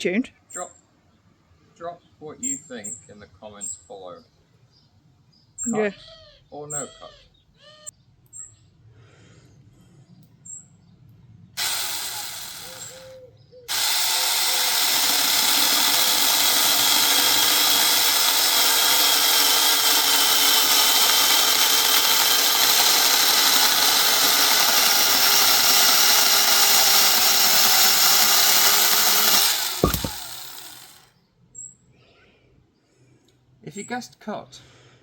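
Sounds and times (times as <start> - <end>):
mini chainsaw cutting wood: 11.6 - 13.1, 13.7 - 31.1.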